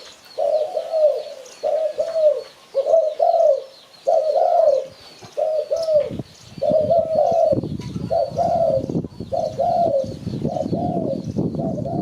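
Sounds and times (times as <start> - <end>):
dove cooing: 0.0 - 12.0.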